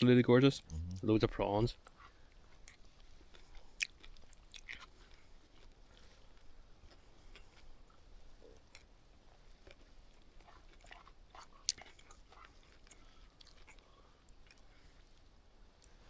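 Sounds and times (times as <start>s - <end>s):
person chewing: 0.6s - 16.0s.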